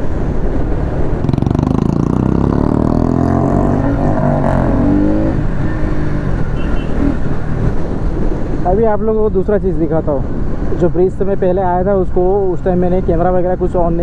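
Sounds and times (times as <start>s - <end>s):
motorcycle engine accelerating: 1.1s - 6.2s.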